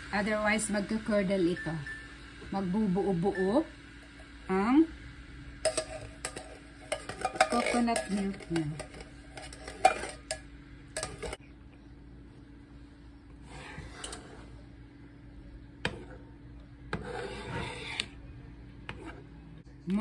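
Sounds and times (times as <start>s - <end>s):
low steady hum: 0.0s - 20.0s
spoon stirring sauce in a pot: 5.7s - 11.4s, 18.8s - 19.3s.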